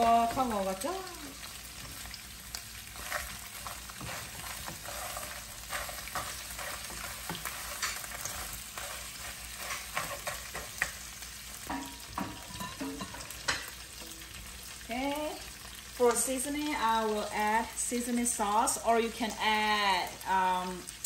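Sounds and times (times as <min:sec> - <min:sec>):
crabs sizzling in hot oil: 0:00.0 - 0:21.0
spatula scraping and knocking pan: 0:02.9 - 0:14.5.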